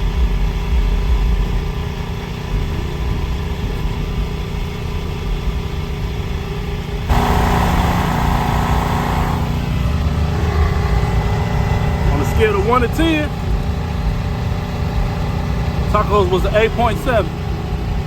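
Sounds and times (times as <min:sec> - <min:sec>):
car engine idling: 0:07.1 - 0:18.0.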